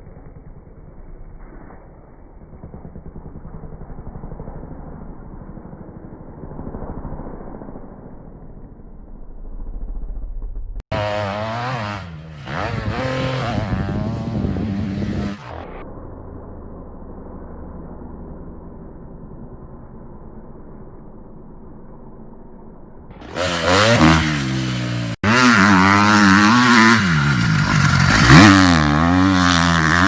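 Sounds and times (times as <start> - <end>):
dirt bike engine revving: 0.0 - 15.8, 23.1 - 30.0
dull pulsing engine: 0.0 - 30.0.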